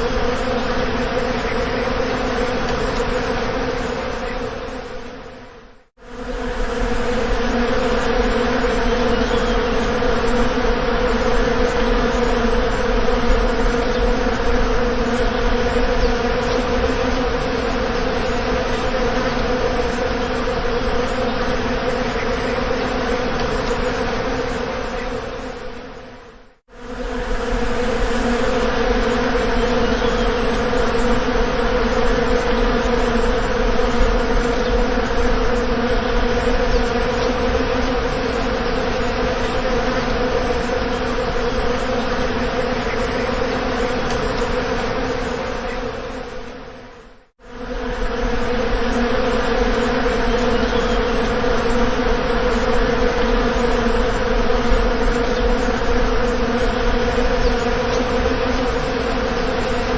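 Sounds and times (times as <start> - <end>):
bees buzzing: 0.0 - 5.4, 6.0 - 59.9.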